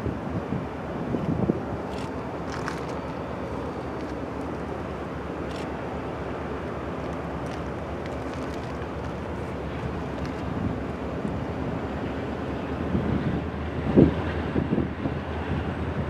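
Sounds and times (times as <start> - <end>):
freight train rumbling past: 0.0 - 16.0
faint clicks from train wheels: 6.5 - 10.6.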